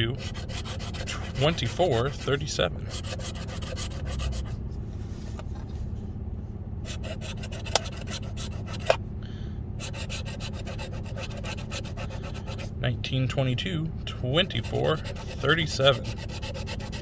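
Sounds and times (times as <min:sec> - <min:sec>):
lottery ticket being scratched: 0:00.0 - 0:04.6, 0:06.9 - 0:09.0, 0:09.8 - 0:12.8, 0:14.2 - 0:17.0
low hum: 0:00.0 - 0:17.0.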